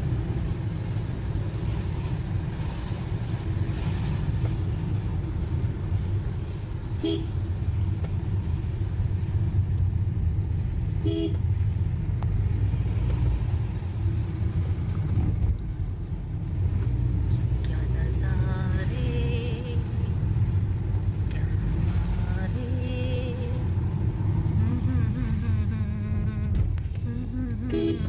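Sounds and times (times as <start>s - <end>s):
car engine and road rumble: 0.0s - 28.0s
car horn toots: 11.0s - 11.4s, 27.6s - 28.0s.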